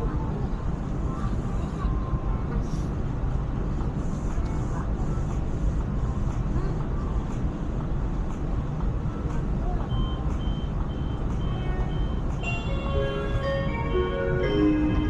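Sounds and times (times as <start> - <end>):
electric train low rumble: 0.0 - 15.0
multi-tone electronic chime: 11.9 - 15.0.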